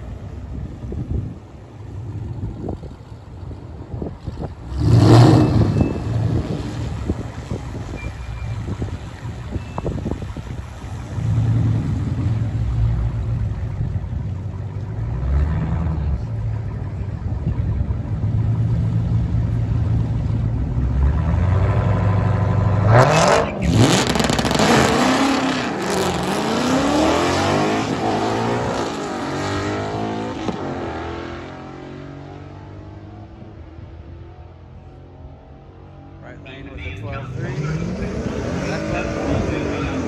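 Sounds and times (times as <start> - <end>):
car engine revving and accelerating: 4.6 - 9.4, 10.8 - 16.7, 17.4 - 33.4, 36.8 - 40.0.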